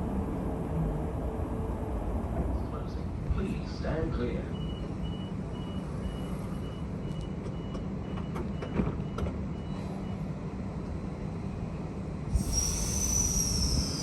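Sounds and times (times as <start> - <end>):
train carriage rumble: 0.0 - 14.0
hiss: 12.3 - 14.0
high-pitched squeal: 12.4 - 14.0.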